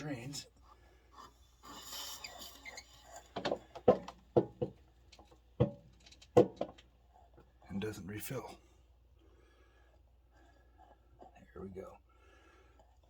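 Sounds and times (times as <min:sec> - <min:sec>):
sharp knocks and clunks: 0:03.3 - 0:07.0.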